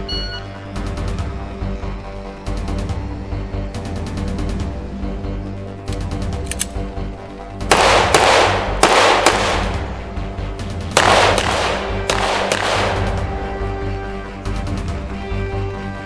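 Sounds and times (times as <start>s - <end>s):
background music: 0.0s - 16.0s
echoing gunshots: 7.6s - 13.5s.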